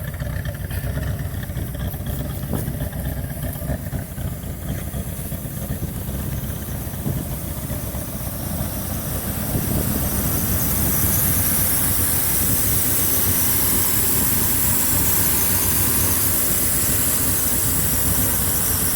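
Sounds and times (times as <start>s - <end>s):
car engine idling: 0.0s - 18.9s
hiss: 4.7s - 18.9s.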